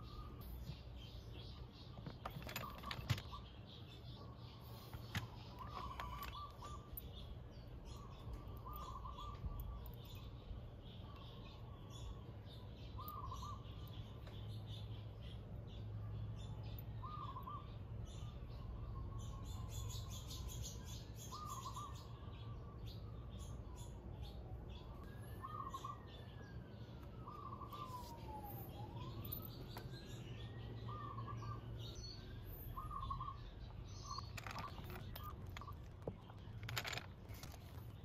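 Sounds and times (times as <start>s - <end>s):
bird warbling call: 8.0s - 9.9s, 25.3s - 26.3s, 27.2s - 29.3s, 32.7s - 35.8s
distant siren wailing: 24.0s - 33.4s.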